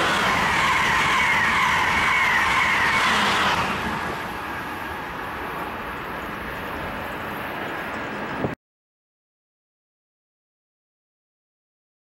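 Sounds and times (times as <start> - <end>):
high-speed train passing: 0.0 - 8.6.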